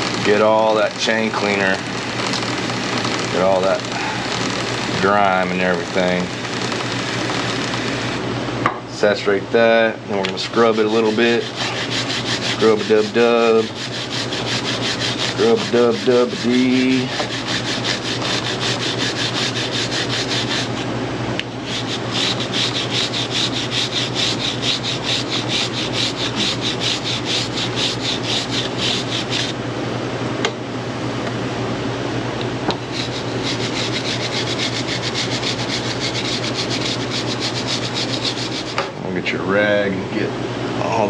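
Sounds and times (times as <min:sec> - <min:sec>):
brush scrubbing a chain: 0:10.6 - 0:20.8, 0:21.6 - 0:29.6, 0:32.9 - 0:38.8.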